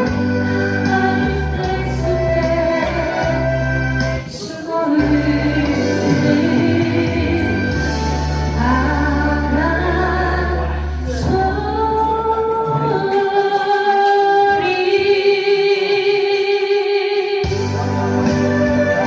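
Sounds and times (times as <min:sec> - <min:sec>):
backing track music: 0:00.0 - 0:15.2, 0:17.4 - 0:19.0
woman singing: 0:00.0 - 0:17.7.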